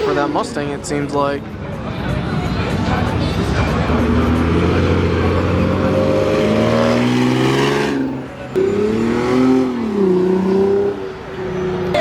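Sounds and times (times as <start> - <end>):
car engine accelerating hard: 3.3 - 11.3.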